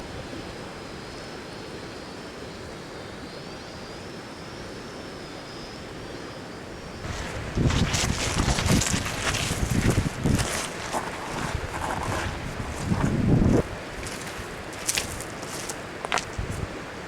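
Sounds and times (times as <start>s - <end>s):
river flowing: 7.0s - 17.0s.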